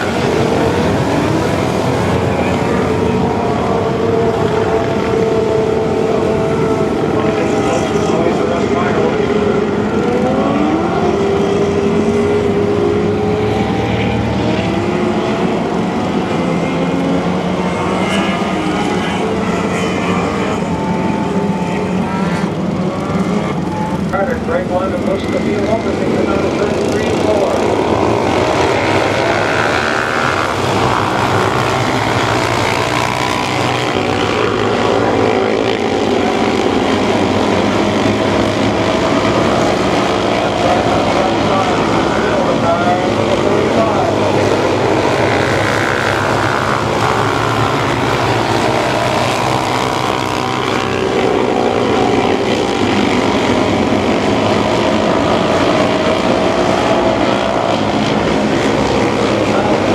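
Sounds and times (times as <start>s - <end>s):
race car engines: 0.0s - 59.9s.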